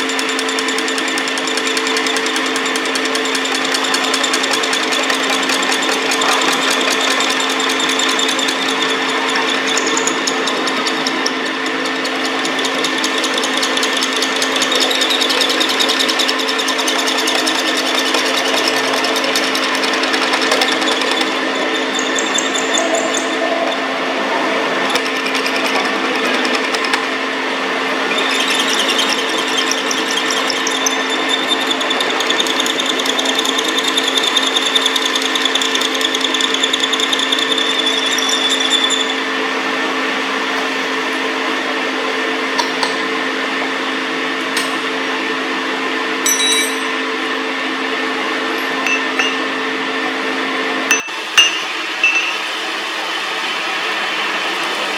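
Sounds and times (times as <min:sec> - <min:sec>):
rough whine of tool cutting steel: 0:00.0 - 0:43.1
metal lathe humming: 0:00.0 - 0:54.9.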